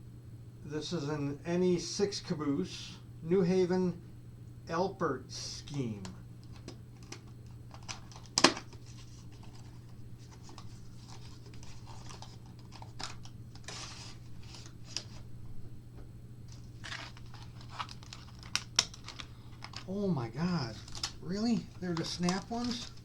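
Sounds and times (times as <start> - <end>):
steady low hum: 0.0 - 23.0
plastic packaging rustling: 6.4 - 15.3, 16.5 - 23.0.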